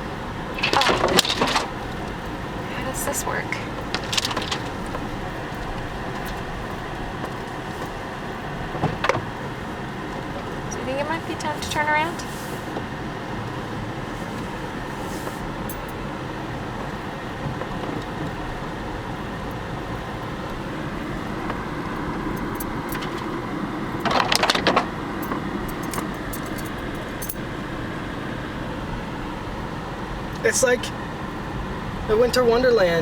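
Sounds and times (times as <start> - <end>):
car engine and tyres rumbling: 0.0 - 33.0
small clicks and rattles: 0.5 - 7.9, 22.2 - 27.4.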